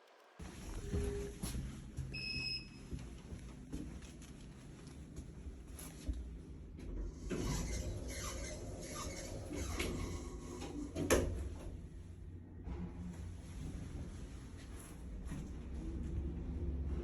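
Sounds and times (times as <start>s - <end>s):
rustling and light clattering: 2.8s - 7.1s, 10.9s - 16.2s.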